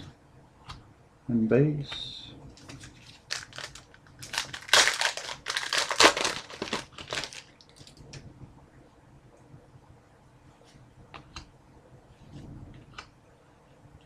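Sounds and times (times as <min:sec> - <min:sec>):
plastic wrapper crinkling: 0:02.6 - 0:08.1.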